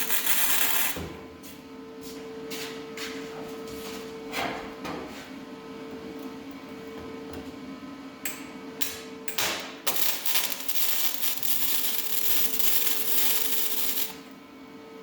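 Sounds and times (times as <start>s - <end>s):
welding arc crackling: 0.0s - 1.0s, 9.8s - 14.3s.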